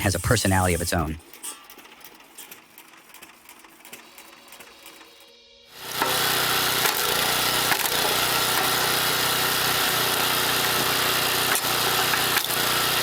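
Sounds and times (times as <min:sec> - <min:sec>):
wood-cutting machine running: 0:03.4 - 0:13.0.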